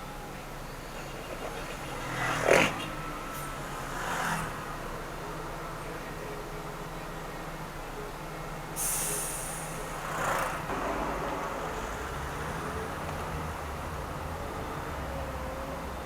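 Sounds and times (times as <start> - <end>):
car engine and road noise: 0.0 - 16.0
sharp hiss: 8.8 - 10.0.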